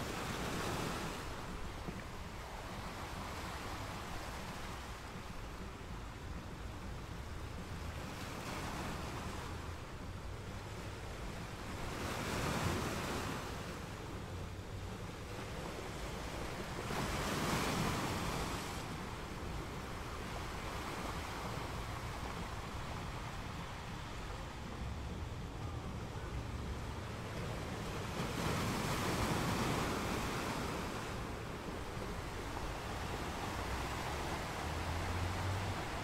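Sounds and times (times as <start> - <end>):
aquarium water rushing and churning: 30.8 - 36.0.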